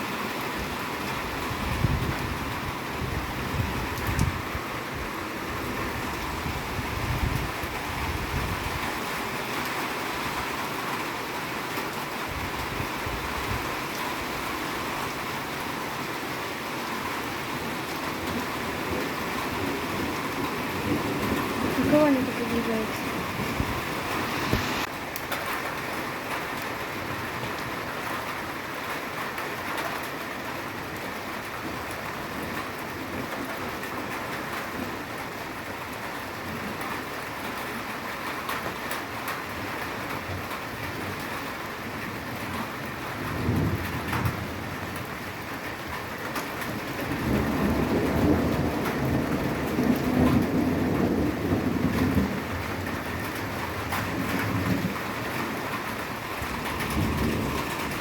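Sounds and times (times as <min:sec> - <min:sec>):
rain hissing: 0:00.2 - 0:26.8, 0:50.9 - 0:58.0
thunder rumbling: 0:17.0 - 0:24.9, 0:46.7 - 0:58.0.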